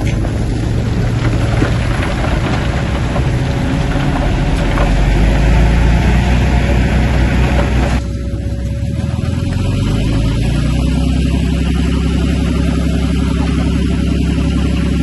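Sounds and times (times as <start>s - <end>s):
metal clanking and clatter: 0.0s - 8.1s
bulldozer diesel engine under load: 0.0s - 15.0s.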